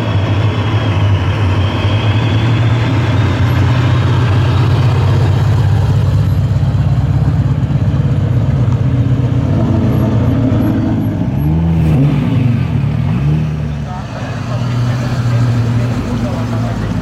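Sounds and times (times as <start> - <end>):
car engine rumbling: 0.0 - 17.0
rising and falling pitched sounds: 10.7 - 14.1.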